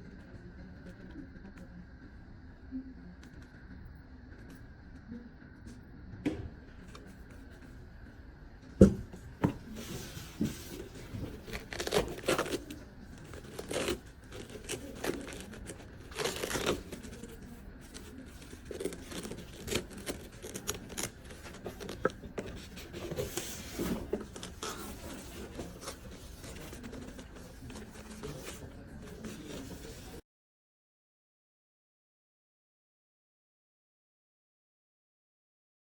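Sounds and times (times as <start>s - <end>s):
packaging rustling and tearing: 9.7s - 30.1s.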